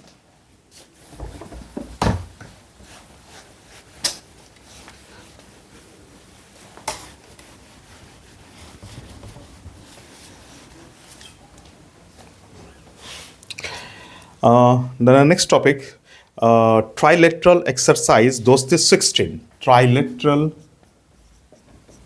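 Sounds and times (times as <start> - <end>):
faint rubbing: 2.6 - 13.4.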